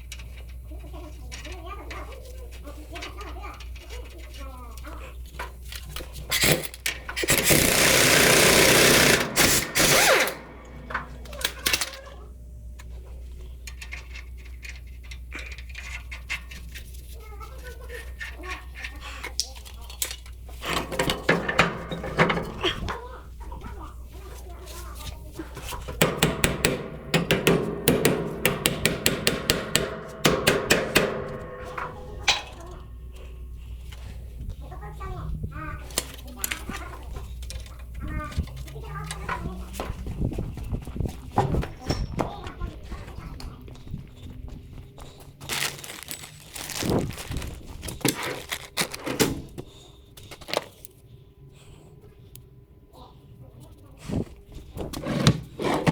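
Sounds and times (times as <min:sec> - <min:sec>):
impact wrench burst: 0:07.2 - 0:11.6, 0:26.0 - 0:32.7
knocks and clatter: 0:07.3 - 0:12.1, 0:20.6 - 0:23.0, 0:25.6 - 0:33.0
hammer striking metal: 0:07.8 - 0:11.8, 0:26.0 - 0:32.9.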